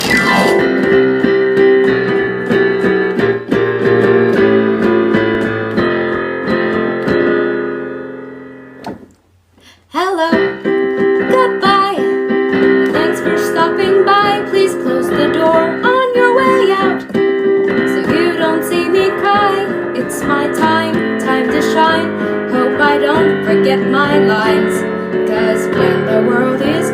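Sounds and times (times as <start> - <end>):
song intro music: 0.0 - 1.2.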